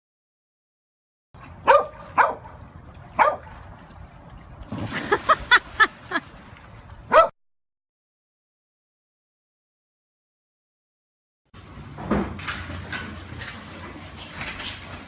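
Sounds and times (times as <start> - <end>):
dog barking: 1.6 - 2.6, 3.2 - 3.5, 7.1 - 7.4.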